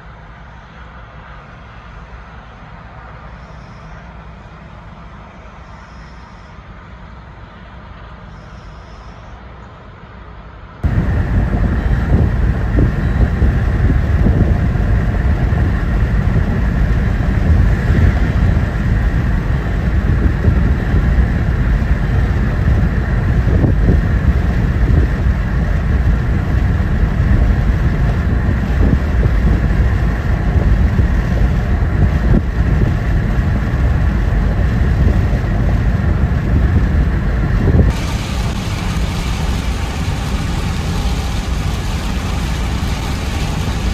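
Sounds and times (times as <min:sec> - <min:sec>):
storm wind and heavy rain: 0:10.8 - 0:43.9.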